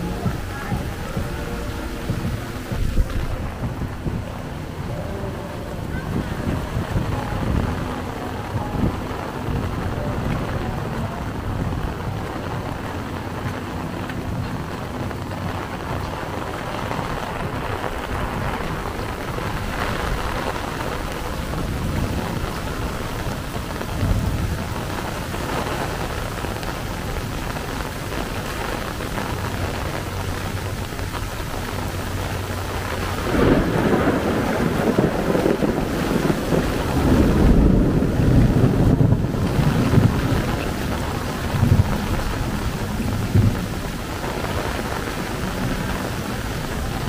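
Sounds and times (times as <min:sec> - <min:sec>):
low rumble: 0:00.0 - 0:25.2
heavy rain falling: 0:00.0 - 0:47.0.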